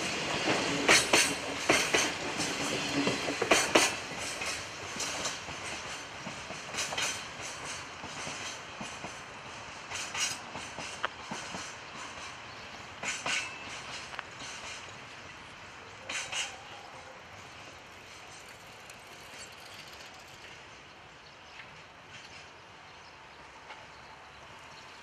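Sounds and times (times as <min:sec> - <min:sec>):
train wheels clicking over rail joints: 0:00.0 - 0:20.8, 0:21.5 - 0:22.7
train rolling rumble: 0:00.0 - 0:25.0.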